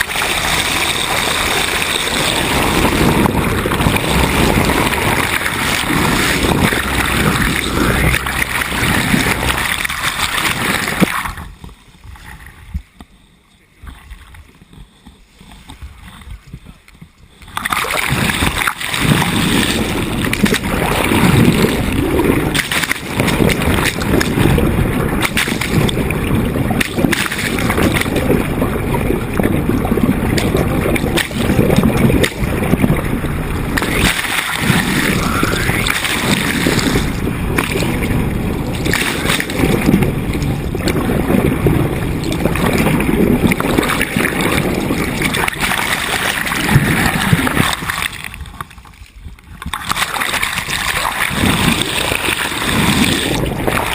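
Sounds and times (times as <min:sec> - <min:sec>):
loud low rumble: 0:00.0 - 0:11.6, 0:18.2 - 0:47.8
water rushing along boat hull: 0:00.0 - 0:53.9.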